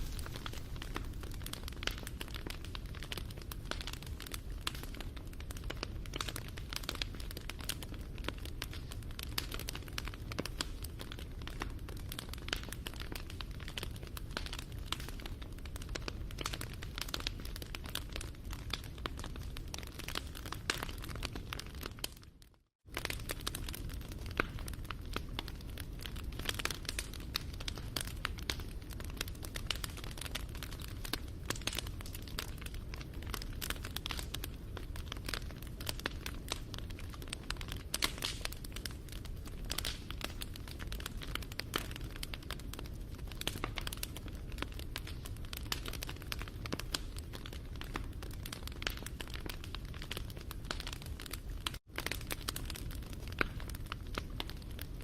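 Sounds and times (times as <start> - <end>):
low rumble: 0.0 - 1.4
wood fire crackling: 0.0 - 55.0.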